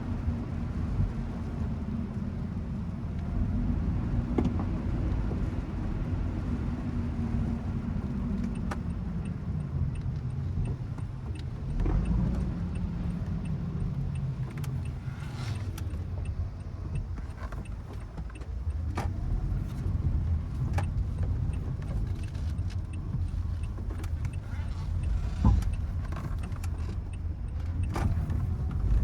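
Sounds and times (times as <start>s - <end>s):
road and engine rumble: 0.0s - 29.0s
light clicks and taps: 8.2s - 29.0s.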